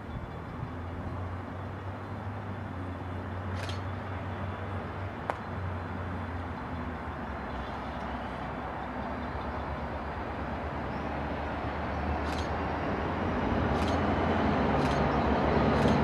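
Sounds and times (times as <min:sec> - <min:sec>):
distant diesel train rumbling: 0:00.0 - 0:16.0
sharp click: 0:03.5 - 0:03.9, 0:12.2 - 0:12.6, 0:13.7 - 0:14.0.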